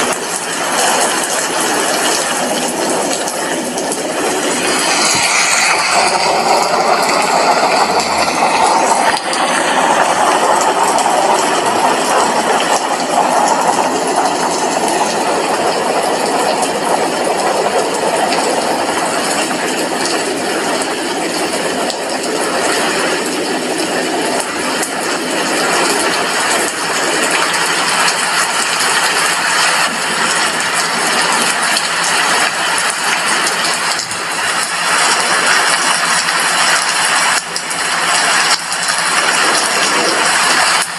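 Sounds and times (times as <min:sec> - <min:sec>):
rain on a glass window: 0:00.0 - 0:40.9.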